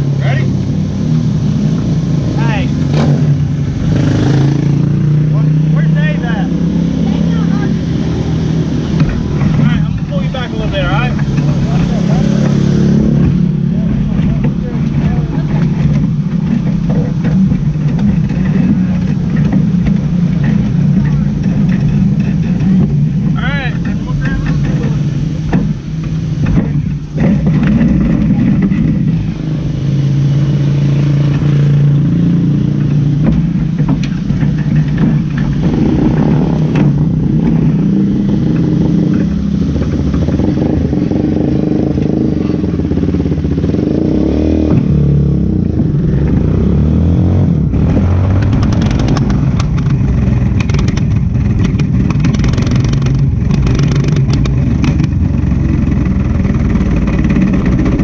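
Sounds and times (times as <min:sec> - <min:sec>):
race car engine revving: 0:00.0 - 0:58.0
rattling clatter: 0:08.8 - 0:29.7, 0:31.1 - 0:44.0, 0:47.8 - 0:58.0.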